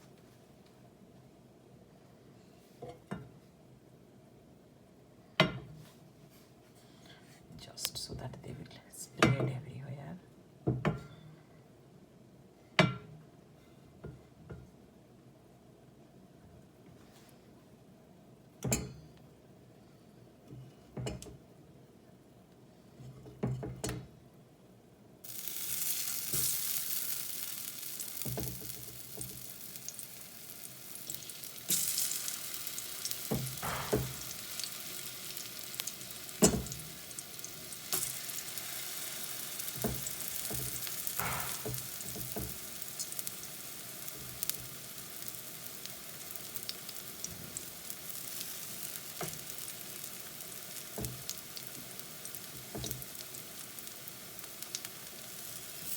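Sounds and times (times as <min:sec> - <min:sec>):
plantain sizzling in a pan: 0:25.2 - 0:55.9
utensil knocking against a pan: 0:33.3 - 0:34.4, 0:39.8 - 0:42.6.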